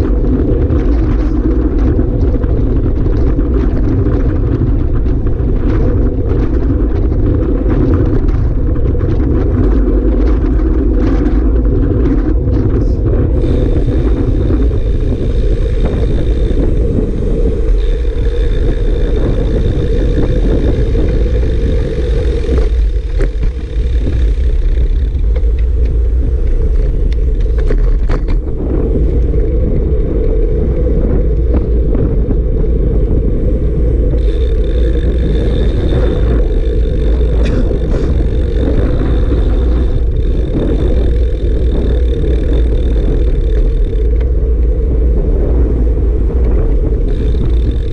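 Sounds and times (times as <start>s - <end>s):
vehicle running: 0.0s - 47.9s
wind buffeting microphone: 0.0s - 47.9s.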